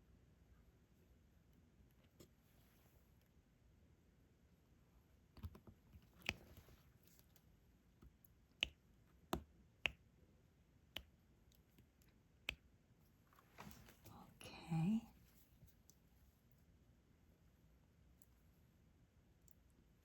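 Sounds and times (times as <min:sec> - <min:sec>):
pen tapping quiet sharp clicks: 0:08.0 - 0:10.1.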